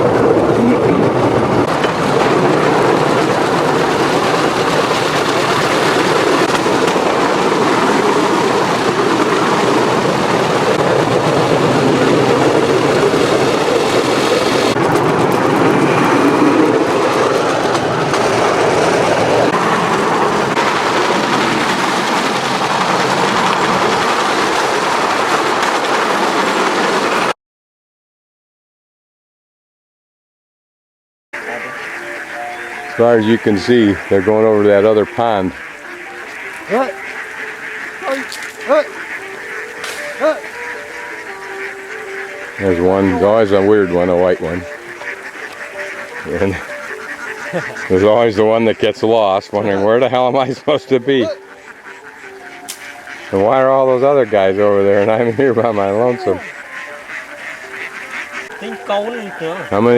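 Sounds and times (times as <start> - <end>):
train wheels clattering on track: 0.0 - 27.3.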